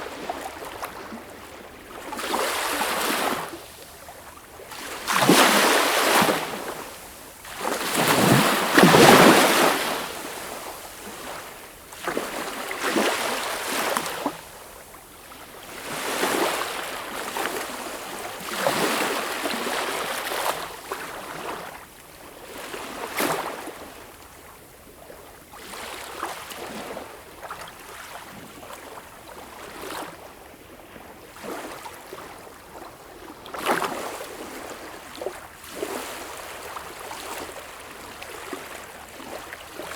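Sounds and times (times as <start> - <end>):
sea waves breaking: 7.9 - 10.1.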